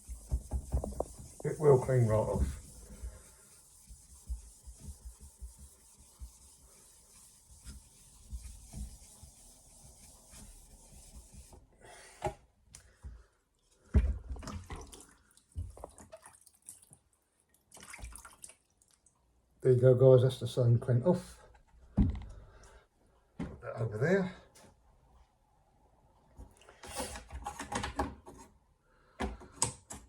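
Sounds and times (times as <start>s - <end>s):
eraser scrubbing wet whetstone: 0.0s - 11.5s
knocks and scrapes: 0.0s - 11.6s.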